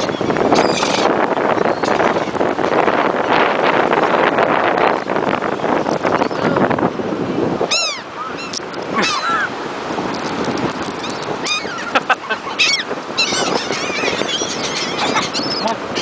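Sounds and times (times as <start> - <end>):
seagulls calling: 0.0 - 3.0, 7.6 - 9.6, 10.9 - 16.0
surf: 0.0 - 16.0
wind: 0.0 - 16.0.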